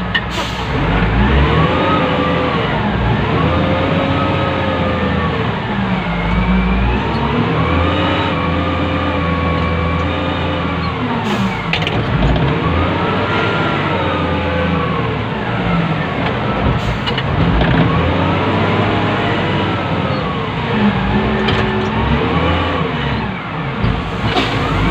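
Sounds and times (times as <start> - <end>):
diesel engine revving: 0.0 - 24.9.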